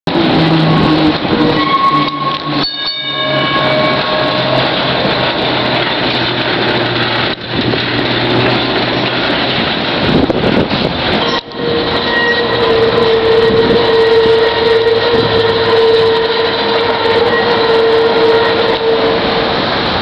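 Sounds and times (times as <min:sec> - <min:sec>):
tram bell ringing: 0:00.1 - 0:10.2, 0:11.0 - 0:20.0
tram motor humming: 0:00.1 - 0:20.0
wheels squealing: 0:00.1 - 0:20.0.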